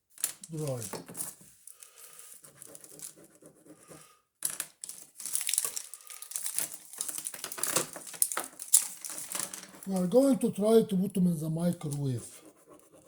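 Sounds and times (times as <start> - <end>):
paper crinkling: 0.2 - 3.2, 4.8 - 10.3
pens scribbling on paper: 2.3 - 4.2, 9.2 - 10.4, 11.6 - 13.0.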